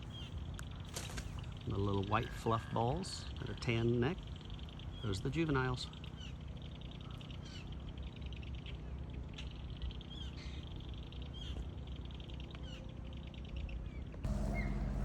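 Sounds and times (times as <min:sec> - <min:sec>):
birds chattering: 0:00.0 - 0:12.9, 0:14.3 - 0:15.0
low steady hum: 0:00.0 - 0:15.0
high downslurred bird calls: 0:14.2 - 0:15.0
low rumble: 0:14.3 - 0:15.0.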